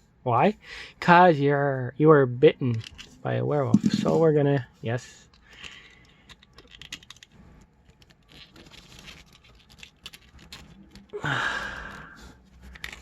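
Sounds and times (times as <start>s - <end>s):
plastic parts clicking and scraping: 2.7s - 4.3s, 5.2s - 11.2s, 11.8s - 13.0s.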